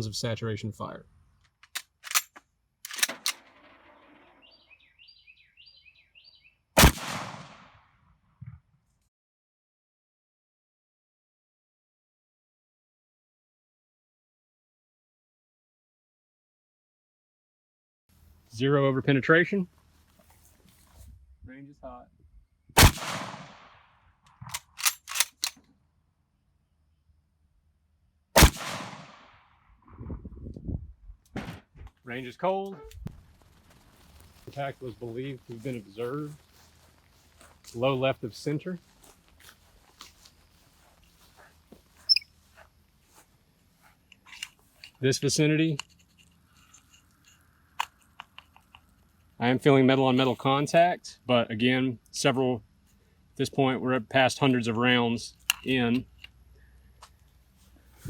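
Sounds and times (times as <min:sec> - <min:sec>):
clicks: 0:01.4 - 0:03.8
rifle bolt metallic clicks: 0:01.5 - 0:03.8, 0:24.3 - 0:25.7, 0:55.4 - 0:56.4
rifle shot with echo: 0:06.8 - 0:07.8, 0:22.8 - 0:23.9, 0:28.4 - 0:29.4.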